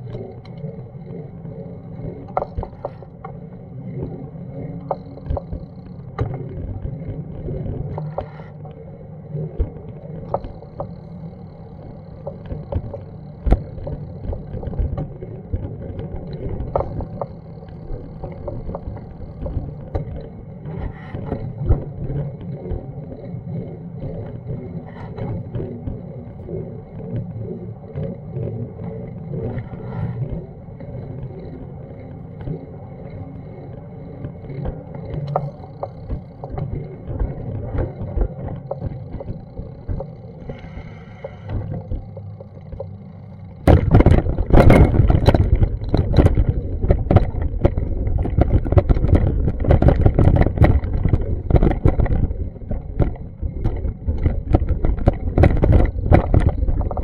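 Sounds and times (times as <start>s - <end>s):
knocks and clicks: 43.6s - 57.0s.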